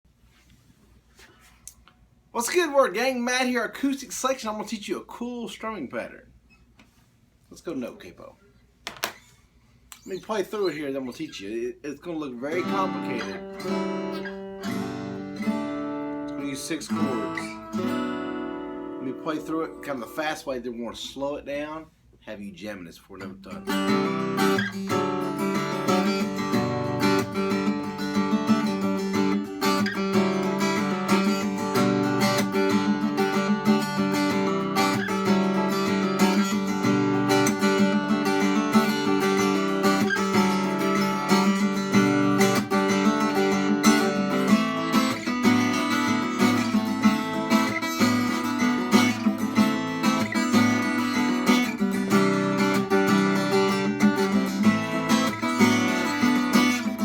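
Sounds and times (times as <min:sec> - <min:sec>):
acoustic guitar strumming: 0:11.9 - 0:20.5, 0:23.2 - 0:57.0.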